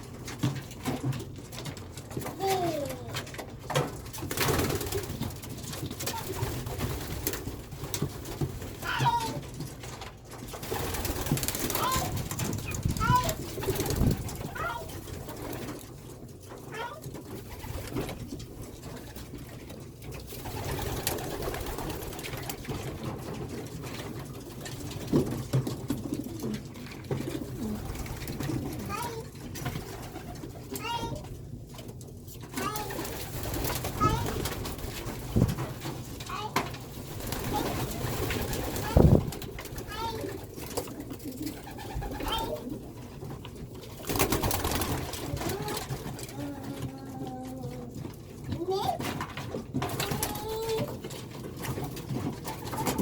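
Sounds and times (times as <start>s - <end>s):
pigeons cooing: 17.4s - 30.8s, 37.0s - 48.0s, 51.7s - 53.0s.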